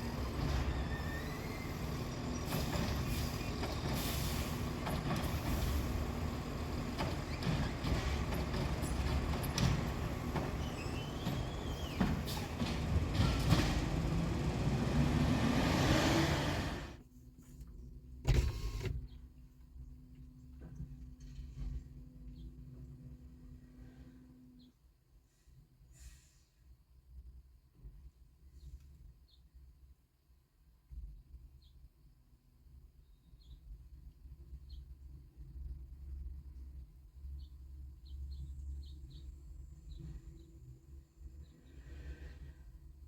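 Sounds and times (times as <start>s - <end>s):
garbage truck engine running: 0.0s - 17.0s
clanks and knocks: 6.9s - 14.3s.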